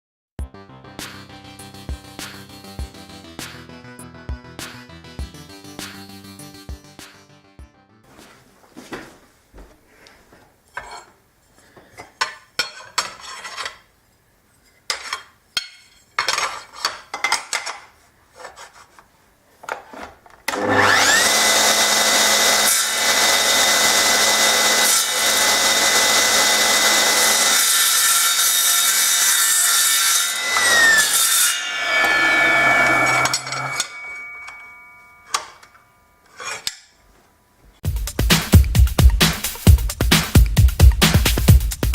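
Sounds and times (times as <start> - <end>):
electric power tool whining: 20.5 - 28.4, 30.2 - 35.8.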